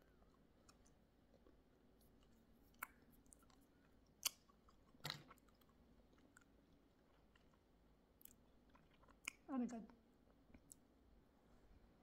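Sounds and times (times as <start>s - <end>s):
person chewing: 0.1s - 9.4s.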